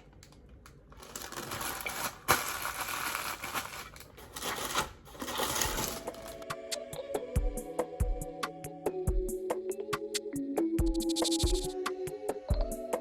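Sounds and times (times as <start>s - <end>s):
rustling and scraping: 1.0s - 6.4s
background music: 5.4s - 13.0s.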